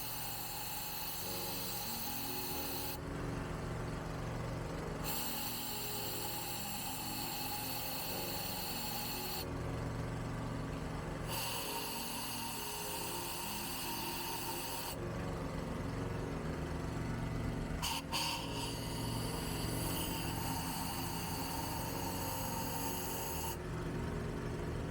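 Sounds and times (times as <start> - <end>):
air blow gun hissing: 0.0 - 3.0, 5.0 - 9.5, 11.3 - 15.0, 17.8 - 23.6
air compressor humming: 0.0 - 24.9.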